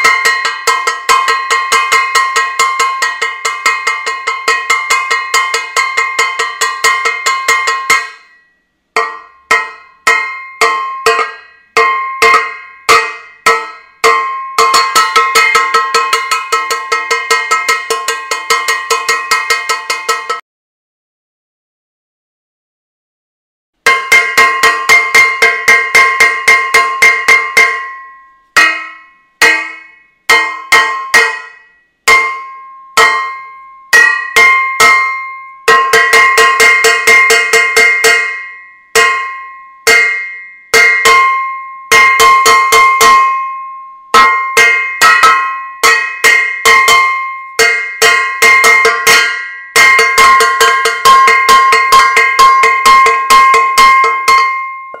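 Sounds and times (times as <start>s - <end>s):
metal saucepan banging: 0.0s - 8.4s, 9.0s - 20.4s, 44.2s - 55.0s.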